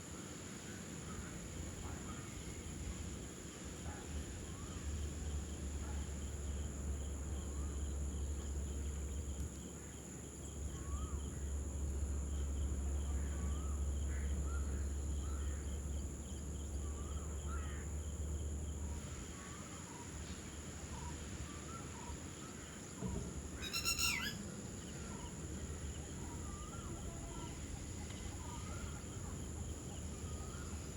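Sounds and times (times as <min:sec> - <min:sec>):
loud shrill call: 0:23.6 - 0:24.4
short rising chirping calls: 0:23.6 - 0:24.5.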